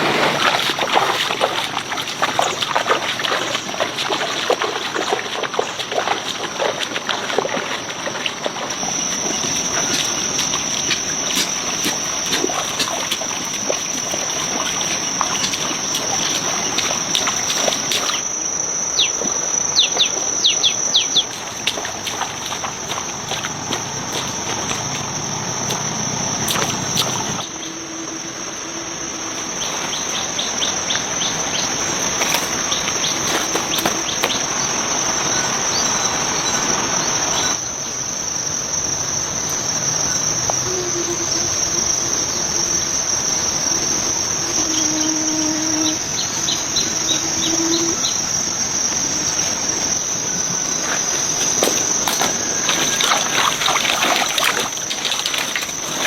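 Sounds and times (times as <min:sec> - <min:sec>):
insects trilling: 0:00.0 - 0:56.0
short low-pitched calls: 0:40.5 - 0:43.0.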